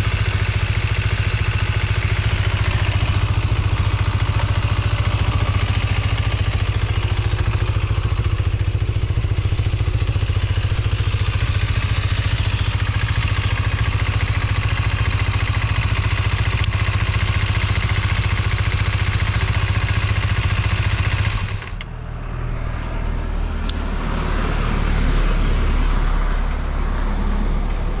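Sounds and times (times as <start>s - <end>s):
motorcycle engine idling: 0.0s - 22.2s
low rumble: 0.7s - 14.6s.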